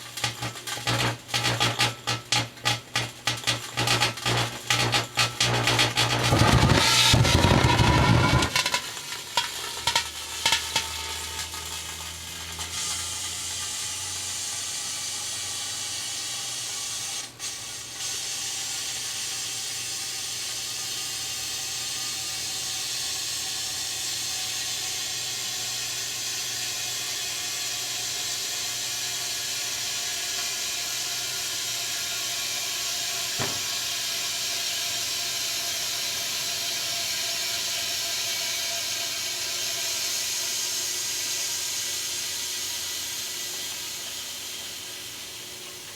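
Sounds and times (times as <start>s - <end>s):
microwave hum: 0.1s - 8.9s.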